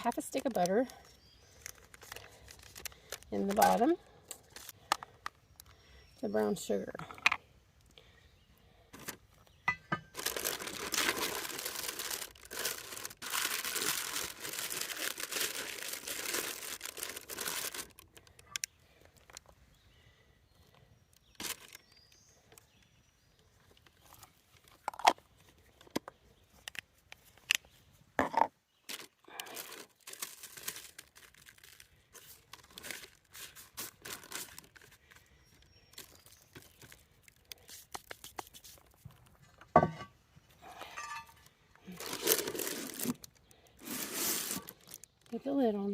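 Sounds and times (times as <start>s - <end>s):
sugar bag crinkling and rustling: 0.0s - 4.8s, 9.0s - 18.6s, 21.2s - 22.0s, 28.8s - 39.3s, 41.0s - 45.9s.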